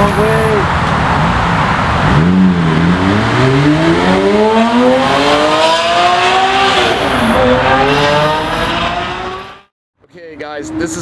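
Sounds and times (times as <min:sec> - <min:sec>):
car engine accelerating: 0:01.3 - 0:09.7.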